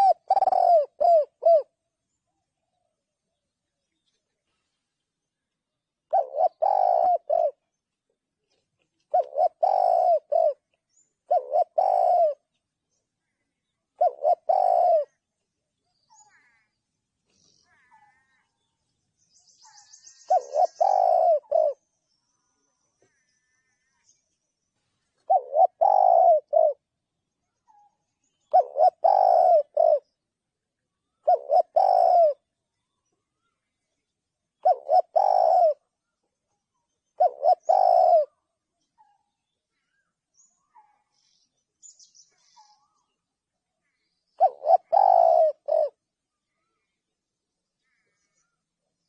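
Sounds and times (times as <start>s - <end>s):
dove cooing: 0.0s - 1.8s, 6.1s - 7.7s, 9.0s - 12.5s, 14.0s - 15.2s, 19.6s - 21.9s, 25.2s - 26.9s, 27.7s - 30.2s, 31.2s - 32.5s, 34.6s - 35.9s, 37.2s - 39.2s, 44.4s - 46.0s.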